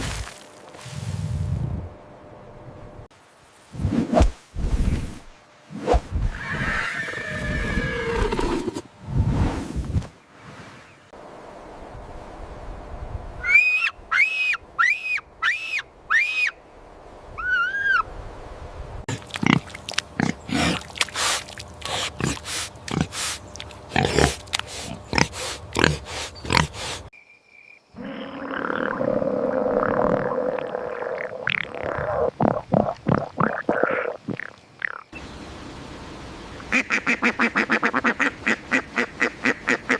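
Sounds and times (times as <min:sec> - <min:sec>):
animal grunts: 0:19.1 - 0:20.9, 0:23.9 - 0:27.0.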